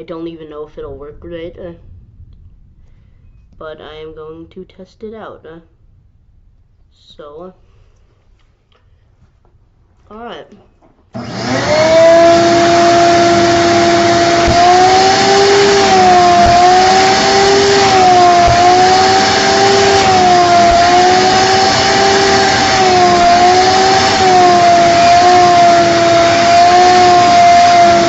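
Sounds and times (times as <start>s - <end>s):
vacuum cleaner motor whine: 11.2s - 28.0s.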